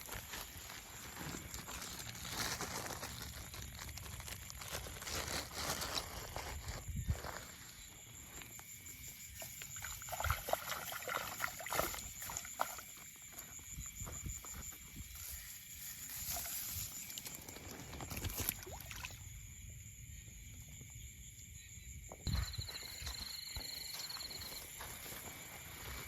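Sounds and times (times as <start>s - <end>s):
rustling: 0.0s - 7.6s
light water splashing: 9.4s - 13.3s, 16.2s - 19.3s
footsteps: 22.2s - 26.0s.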